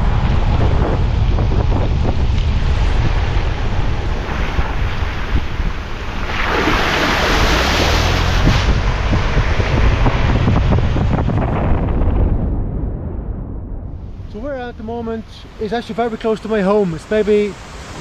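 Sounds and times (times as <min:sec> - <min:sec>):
wind buffeting microphone: 0:00.0 - 0:18.0
rushing creek: 0:06.2 - 0:09.1, 0:14.8 - 0:18.0.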